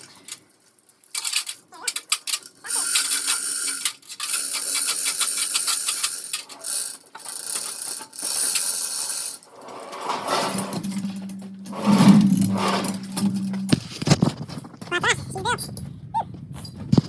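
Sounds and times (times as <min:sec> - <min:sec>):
metallic mechanism clicking and rattling: 0:00.0 - 0:14.9
low steady hum: 0:10.2 - 0:14.9.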